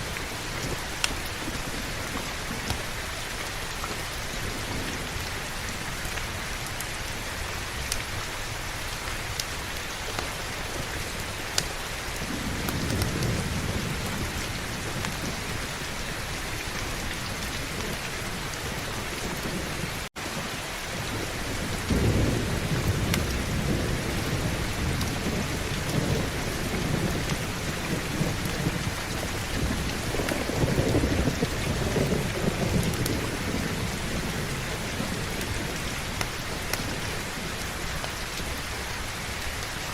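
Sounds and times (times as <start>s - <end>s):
heavy rain: 0.0s - 39.9s
rolling thunder: 10.8s - 20.0s, 20.9s - 38.6s.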